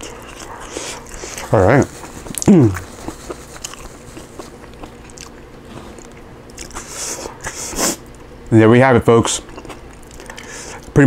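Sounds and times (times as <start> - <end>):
person biting and chewing: 0.0 - 8.3, 9.4 - 10.9
person humming: 2.4 - 2.9.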